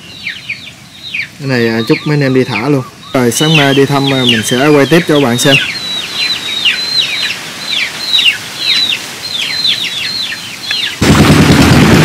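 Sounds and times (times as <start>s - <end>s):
birds chirping: 0.0s - 11.9s
loud steady engine noise: 11.0s - 12.0s.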